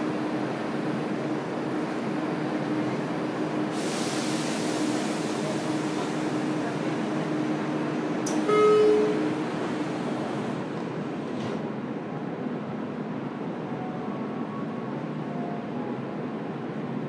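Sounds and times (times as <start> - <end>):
train interior rumble and hum: 0.0 - 17.0
hiss: 3.7 - 6.6
click: 8.2 - 8.4
short beep: 8.4 - 9.3.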